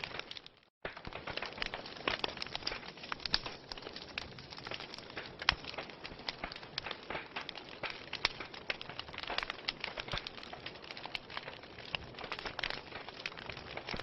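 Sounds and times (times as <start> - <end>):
fire crackling with pops and snaps: 0.0 - 14.0.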